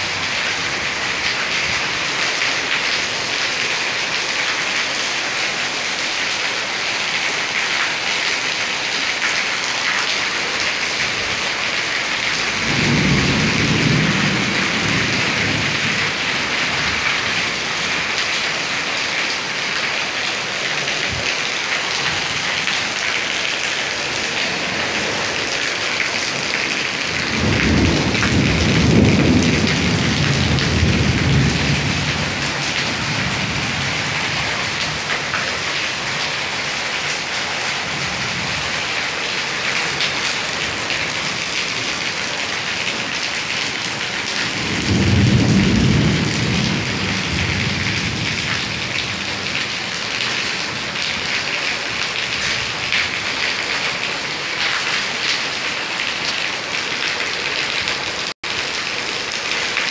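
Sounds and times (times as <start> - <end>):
heavy rain on metal roof: 0.0 - 59.9
thunder rumbling: 12.3 - 18.2, 20.9 - 36.2, 43.9 - 49.9.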